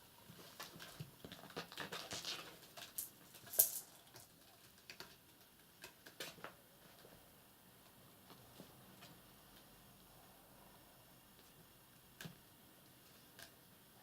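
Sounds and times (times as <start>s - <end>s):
kittens tapping and scratching: 0.2s - 7.2s.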